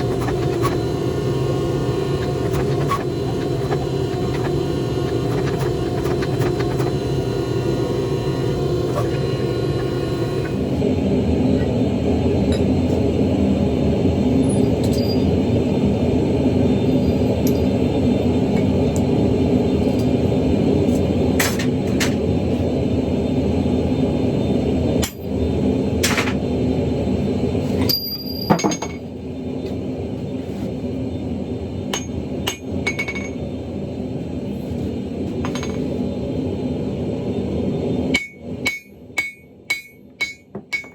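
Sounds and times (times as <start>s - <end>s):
forge roaring: 0.0s - 14.4s
low drone: 0.0s - 27.8s.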